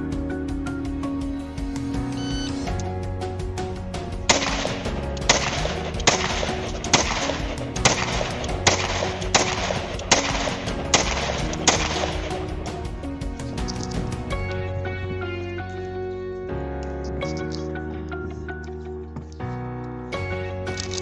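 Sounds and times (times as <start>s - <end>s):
background music: 0.0s - 21.0s
rifle shots with echo: 4.3s - 12.5s.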